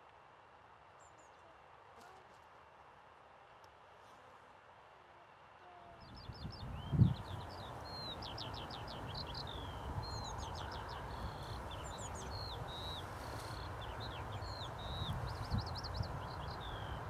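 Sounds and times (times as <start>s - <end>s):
outdoor background hiss: 0.0s - 17.0s
small birds singing: 6.0s - 17.0s.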